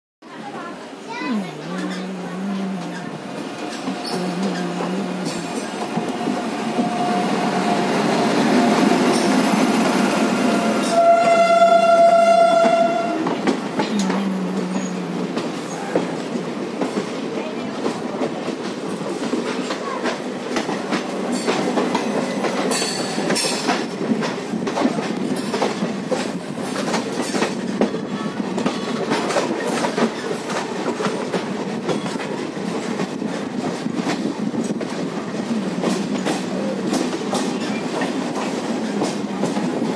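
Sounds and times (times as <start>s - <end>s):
train wheels rumbling and clicking: 0.8s - 39.9s
train horn blowing: 4.0s - 8.3s, 10.4s - 13.4s.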